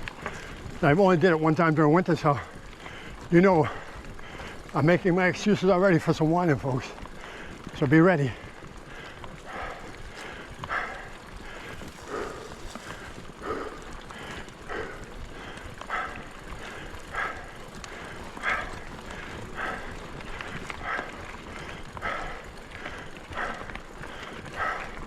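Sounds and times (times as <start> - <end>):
bike tyres on trail: 0.0 - 25.0
person breathing hard: 2.4 - 4.8, 7.0 - 25.0.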